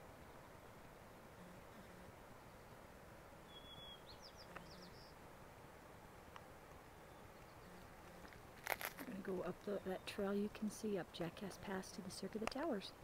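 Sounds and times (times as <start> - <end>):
faint steady hiss: 0.0 - 13.0
bird chirping: 3.4 - 5.2.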